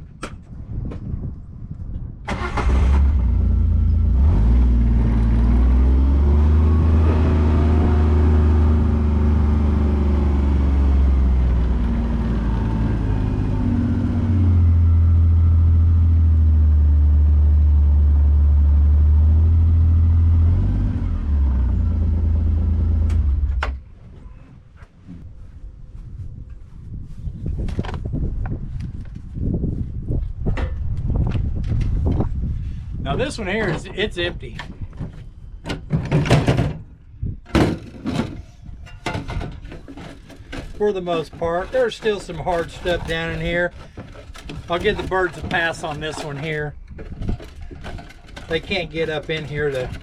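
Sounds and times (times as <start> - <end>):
vehicle engine running: 3.1 - 23.6.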